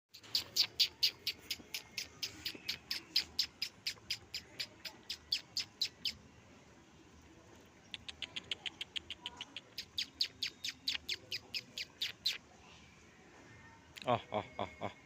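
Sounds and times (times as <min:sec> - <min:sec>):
bird chirping: 0:00.1 - 0:06.2, 0:07.8 - 0:12.4.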